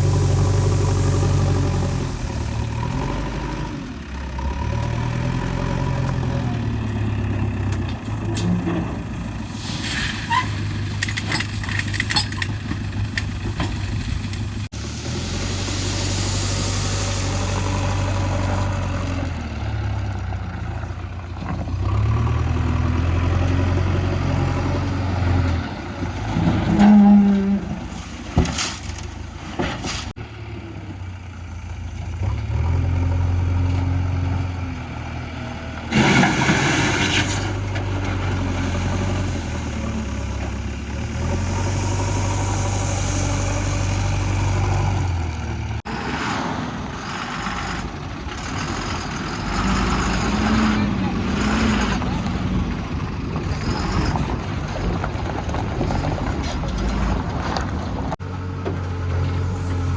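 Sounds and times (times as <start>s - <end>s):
burst of hiss: 14.8s - 18.0s, 41.4s - 44.2s
heavy diesel engine running: 30.2s - 59.9s.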